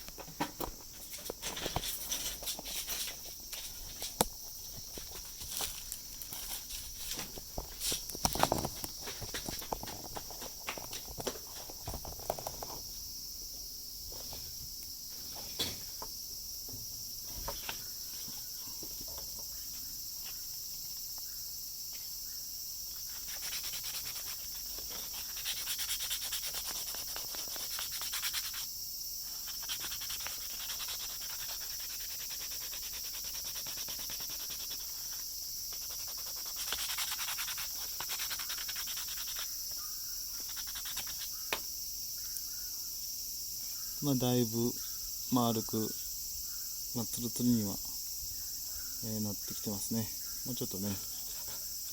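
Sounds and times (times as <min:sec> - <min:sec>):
high-pitched background hiss: 0:00.0 - 0:51.9
sandpaper scratching plastic: 0:23.1 - 0:28.7, 0:29.4 - 0:39.5, 0:40.4 - 0:41.3.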